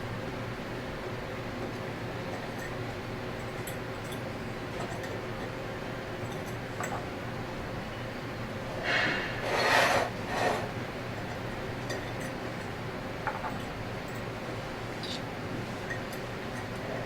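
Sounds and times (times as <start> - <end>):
rubbing scraping noises: 8.9 - 10.7.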